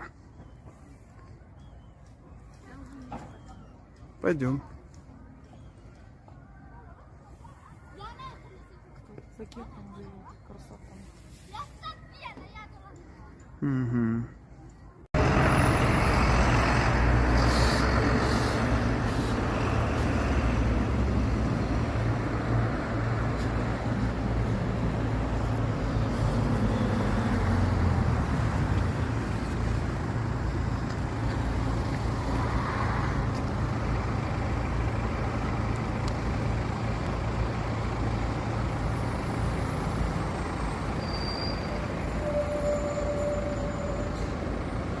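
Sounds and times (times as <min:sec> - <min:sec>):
engine rumble: 0:12.9 - 0:45.0.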